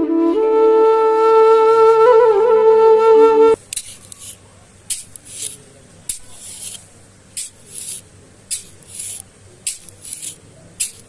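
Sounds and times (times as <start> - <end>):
rhythmic scraping strokes: 3.7 - 6.8, 7.4 - 11.0.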